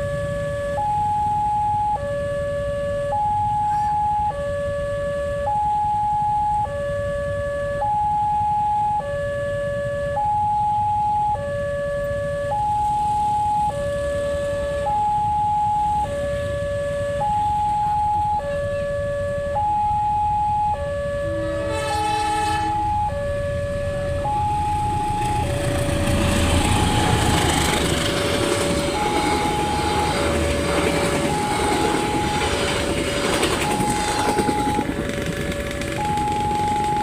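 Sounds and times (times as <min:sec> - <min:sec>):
level crossing alarm: 0:00.0 - 0:09.4, 0:10.0 - 0:37.0
train horn: 0:21.2 - 0:23.1, 0:28.6 - 0:30.5, 0:31.3 - 0:32.8, 0:33.7 - 0:34.9
train passing with wheel noise: 0:21.3 - 0:37.0.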